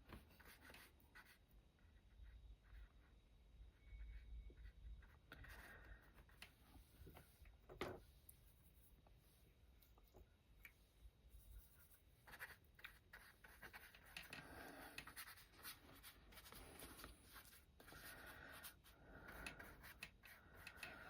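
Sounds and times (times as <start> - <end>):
paintbrush strokes on paper: 11.2 - 21.0.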